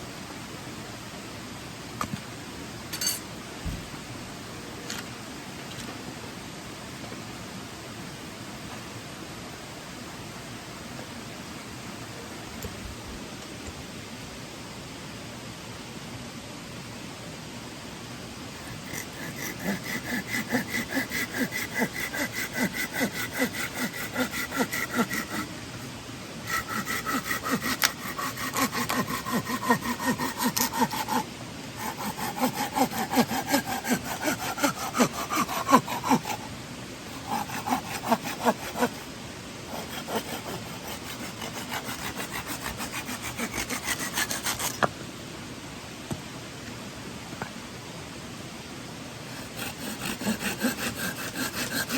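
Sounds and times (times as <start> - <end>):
hand saw cutting wood: 18.6 - 25.5, 26.4 - 36.5, 37.1 - 39.1, 39.7 - 44.9, 49.3 - 51.9.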